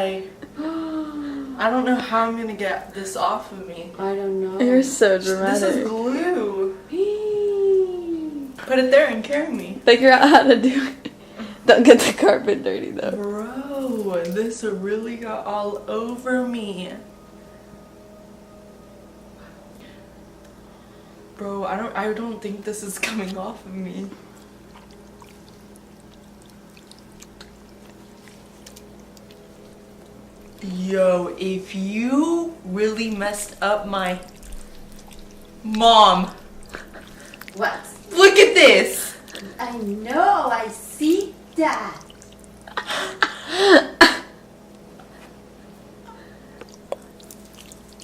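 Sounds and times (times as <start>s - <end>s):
steady low hum: 0.0s - 48.0s
slime ticking and crackling: 24.3s - 30.7s, 32.9s - 38.5s, 39.1s - 42.7s, 46.6s - 48.0s.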